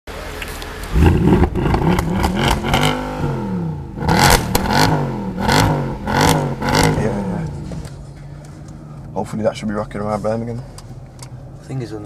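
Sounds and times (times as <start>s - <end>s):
car engine accelerating hard: 0.8s - 7.9s.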